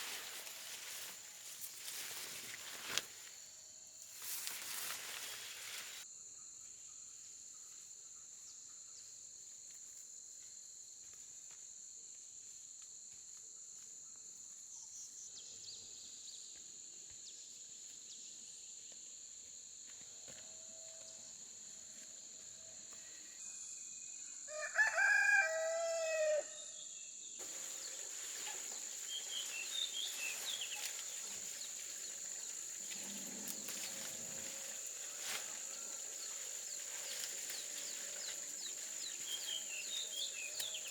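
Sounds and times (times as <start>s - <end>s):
rooster crowing: 24.5s - 26.7s.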